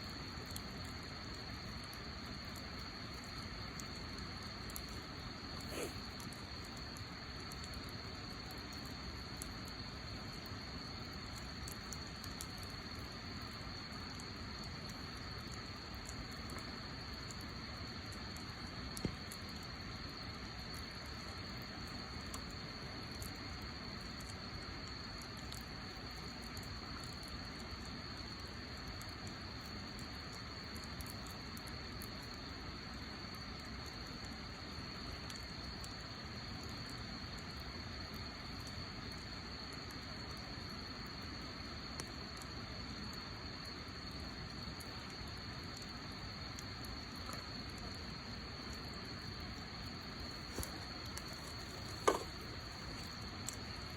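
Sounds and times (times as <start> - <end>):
wood fire hissing and crackling: 0.0 - 53.9
fire pop: 5.6 - 6.1, 50.2 - 53.9.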